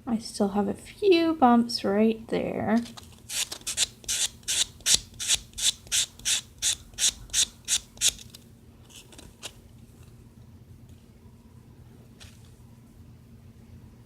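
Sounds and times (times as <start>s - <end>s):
nail buffer scratching nail: 3.3s - 8.3s.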